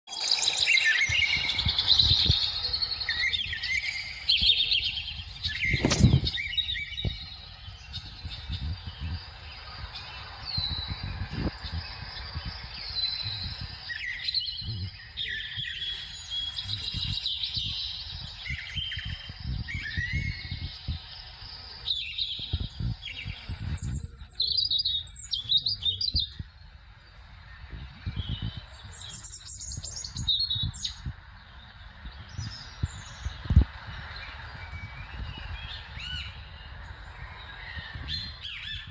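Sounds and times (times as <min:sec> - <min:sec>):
small birds chirping: 0:00.1 - 0:38.9
uneven low rumble: 0:01.0 - 0:38.9.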